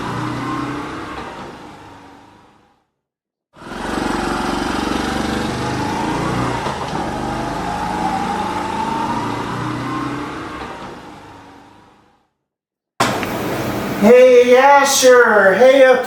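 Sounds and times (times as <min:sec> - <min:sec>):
vehicle engine revving: 0:03.6 - 0:10.6.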